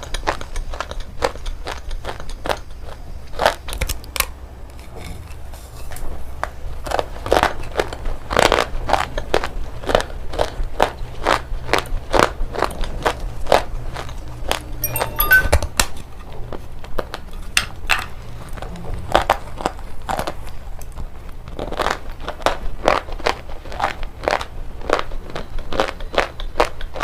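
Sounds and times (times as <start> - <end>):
stone being chewed crunching: 0.0 - 14.6, 19.2 - 27.0.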